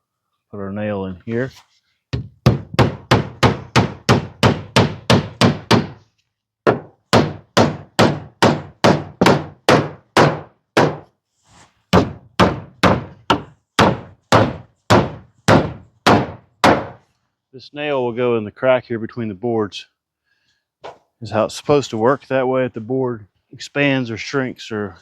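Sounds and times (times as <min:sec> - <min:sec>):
hammer driving nails into wood: 0:02.1 - 0:06.0, 0:06.6 - 0:11.1, 0:11.9 - 0:17.0.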